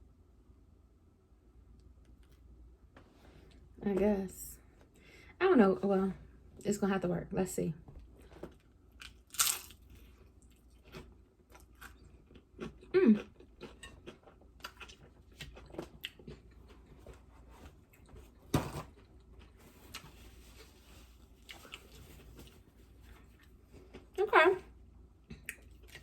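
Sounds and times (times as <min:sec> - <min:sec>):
tostada shell crunching: 0:08.2 - 0:24.2.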